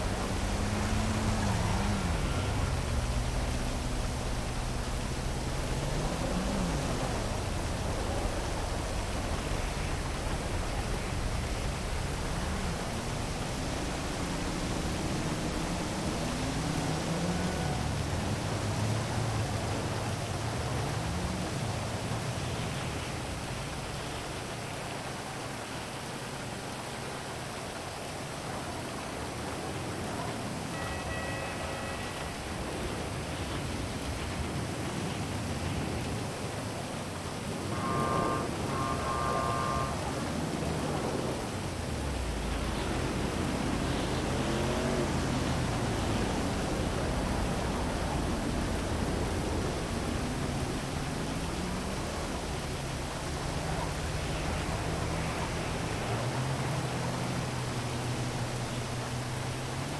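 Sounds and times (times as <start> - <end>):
city traffic hum: 0.0 - 59.9
heavy rain hiss: 0.0 - 59.9.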